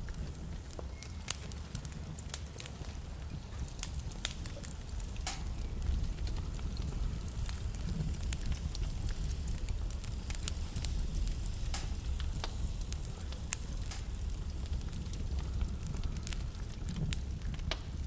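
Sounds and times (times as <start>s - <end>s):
fire flames rumbling: 0.0s - 18.0s
logs crackling and popping: 0.0s - 18.0s.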